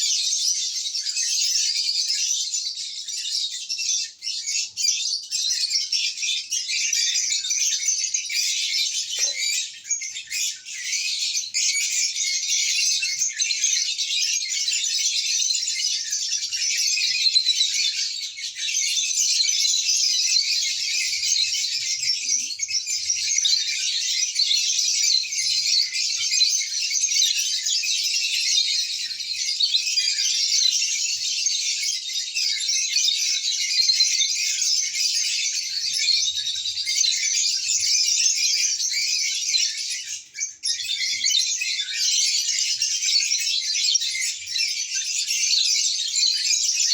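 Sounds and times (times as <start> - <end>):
lovebirds chattering: 6.6 - 12.2.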